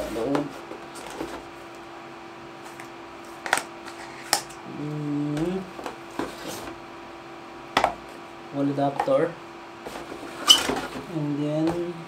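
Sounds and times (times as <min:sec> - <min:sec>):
faint steady hum: 0:00.0 - 0:12.0
man humming: 0:04.6 - 0:05.7.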